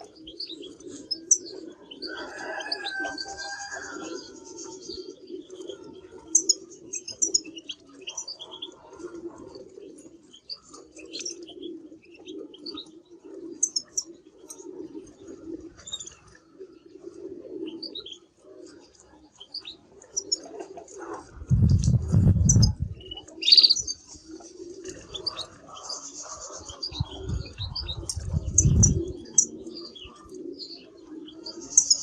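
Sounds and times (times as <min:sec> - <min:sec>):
low pulsing warble: 0:21.3 - 0:23.8, 0:27.0 - 0:29.3.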